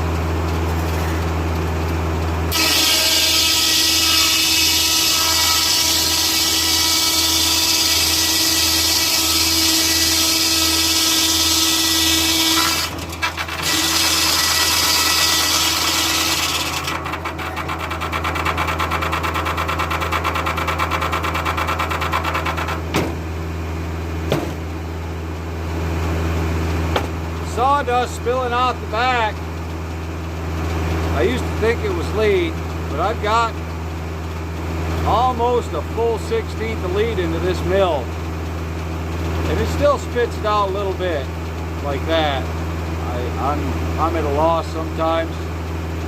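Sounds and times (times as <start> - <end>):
tractor engine drone: 0.0 - 2.6, 12.9 - 13.7, 16.7 - 46.0
circular saw blade cutting log: 2.5 - 23.1, 26.9 - 29.4, 31.1 - 33.6, 35.0 - 38.2, 39.4 - 45.4
sharp knocks: 17.3 - 23.2, 24.3 - 24.6.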